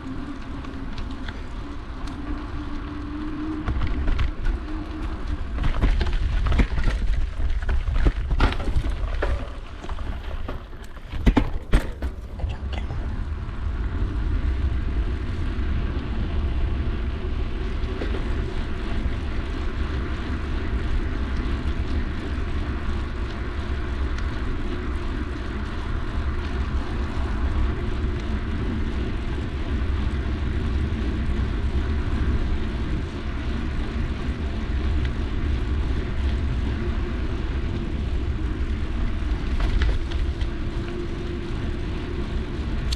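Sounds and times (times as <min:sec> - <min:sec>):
wind and bike riding rumble: 0:00.0 - 0:42.9
bike clattering over rough ground: 0:03.5 - 0:12.7.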